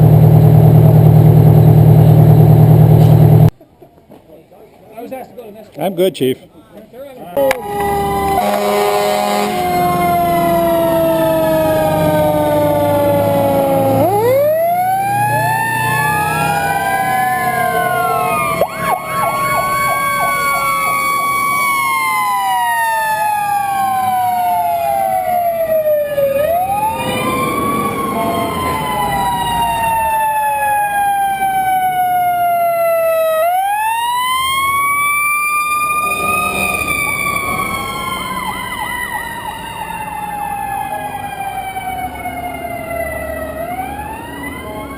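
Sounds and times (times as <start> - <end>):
low engine rumble: 0.0 - 3.5
fire truck sirens wailing: 7.4 - 44.9.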